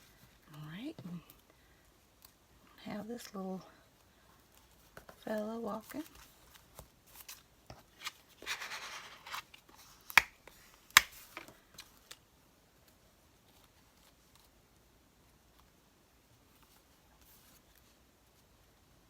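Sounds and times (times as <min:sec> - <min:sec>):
paper rustling: 0:04.6 - 0:12.0.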